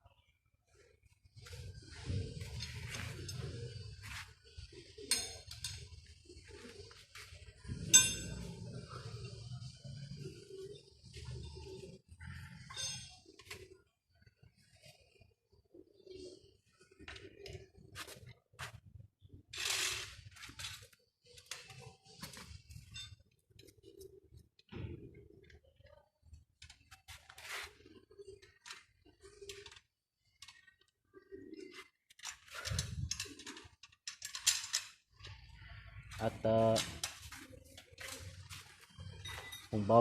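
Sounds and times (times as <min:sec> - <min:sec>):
tools and parts clinking: 0:01.5 - 0:04.2, 0:04.8 - 0:09.5, 0:12.4 - 0:13.8, 0:19.5 - 0:23.8, 0:31.7 - 0:35.5, 0:36.1 - 0:40.0.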